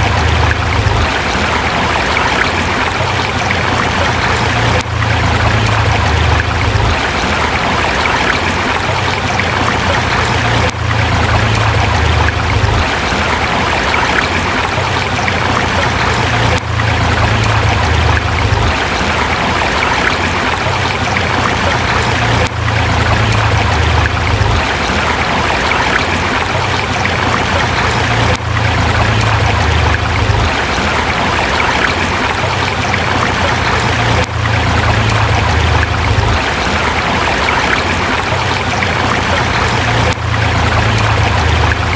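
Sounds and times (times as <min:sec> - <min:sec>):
river flowing over rocks: 0:00.0 - 0:41.9.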